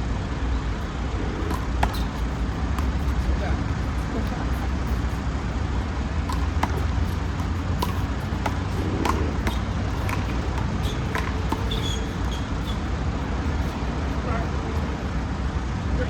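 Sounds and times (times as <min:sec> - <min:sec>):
low traffic rumble: 0:00.0 - 0:16.0
rubber ball smacking wall: 0:06.3 - 0:12.3.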